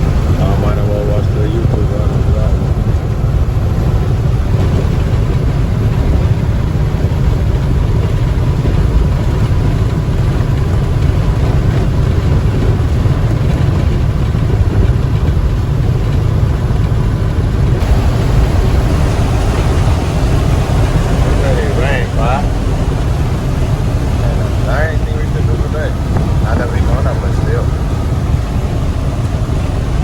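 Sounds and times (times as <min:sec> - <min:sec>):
truck engine and tyres droning: 0:00.0 - 0:30.0.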